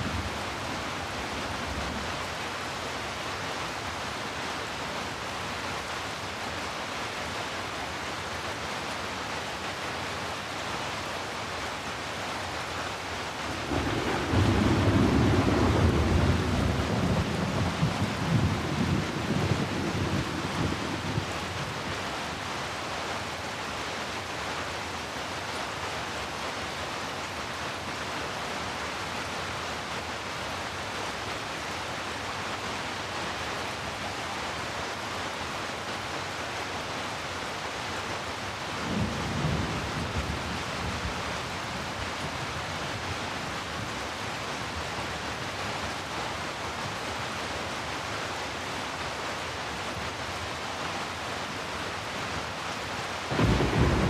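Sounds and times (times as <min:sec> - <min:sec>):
rain falling: 0:00.0 - 0:54.0
low rumble of thunder: 0:13.5 - 0:21.7, 0:38.8 - 0:42.0, 0:53.3 - 0:54.0.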